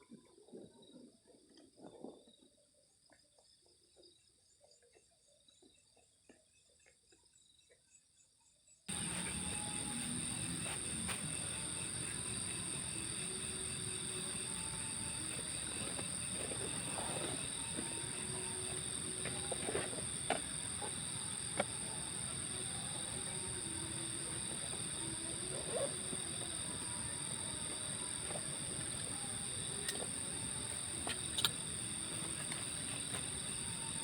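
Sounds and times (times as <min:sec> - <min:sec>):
crickets chirring: 0:08.9 - 0:34.0.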